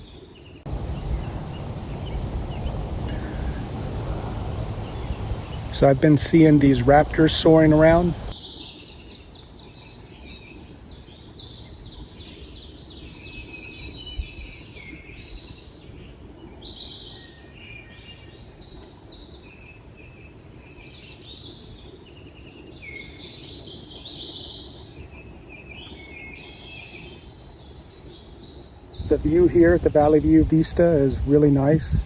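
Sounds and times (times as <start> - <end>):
songbirds singing in chorus: 0.0 - 32.0
low bump: 0.7 - 8.3
wind on microphone: 0.7 - 8.4, 28.9 - 32.0.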